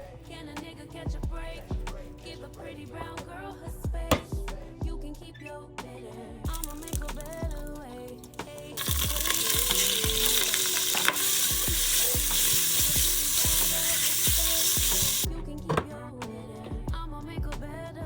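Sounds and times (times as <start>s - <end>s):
music with steady beat: 0.0s - 5.2s, 5.8s - 18.0s
food sizzling in frying pan: 8.8s - 15.3s.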